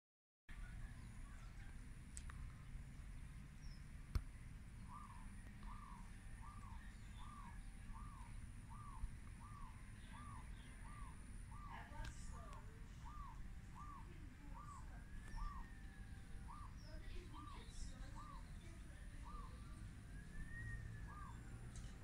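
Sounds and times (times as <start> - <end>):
bird calling: 4.8 - 22.0.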